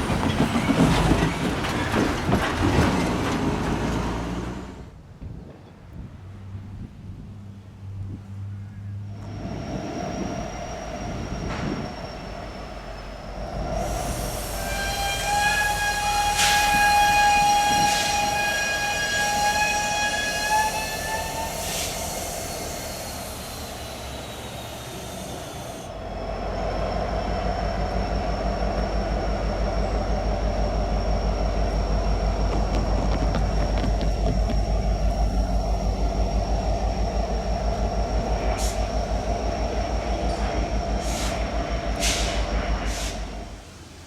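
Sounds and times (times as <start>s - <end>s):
locomotive engine rumble: 0.0s - 44.0s
locomotive air horn chord: 13.9s - 22.8s.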